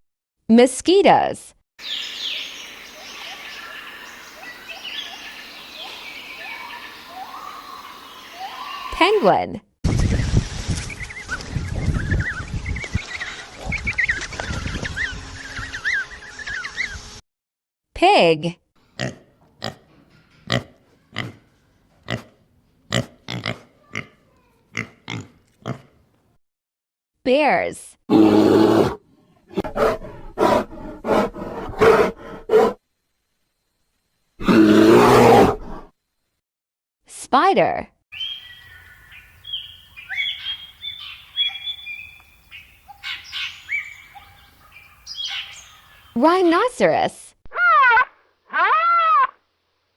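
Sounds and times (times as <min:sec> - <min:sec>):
birds whistling calls: 0:01.8 - 0:09.2, 0:10.9 - 0:17.2, 0:38.2 - 0:46.2
pig grunting: 0:20.5 - 0:21.5, 0:22.1 - 0:25.9.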